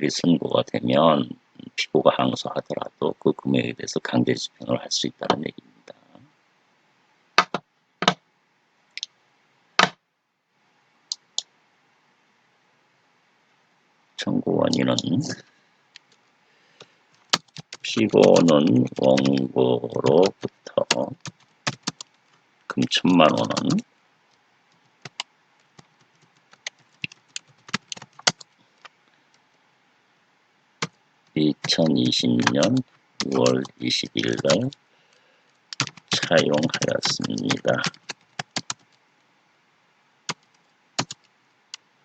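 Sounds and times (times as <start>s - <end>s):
typing on computer keyboard: 17.1s - 22.4s, 23.3s - 23.8s, 25.0s - 28.5s, 31.6s - 34.8s, 35.7s - 39.0s, 40.3s - 41.3s.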